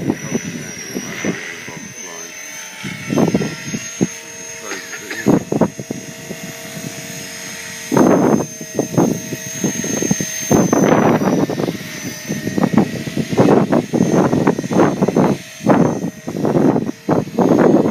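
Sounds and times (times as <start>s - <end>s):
rc helicopter motor whine: 0.0s - 17.9s.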